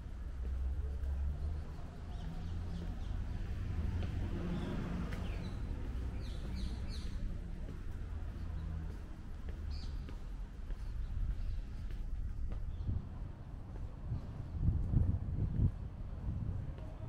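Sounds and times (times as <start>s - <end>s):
low rumble: 0.0s - 17.0s
birds chirping: 2.0s - 7.4s.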